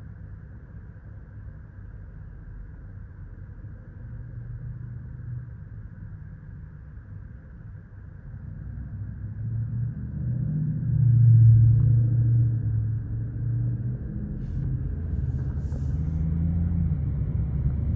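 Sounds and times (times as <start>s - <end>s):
diesel engine rumble: 8.3s - 17.9s.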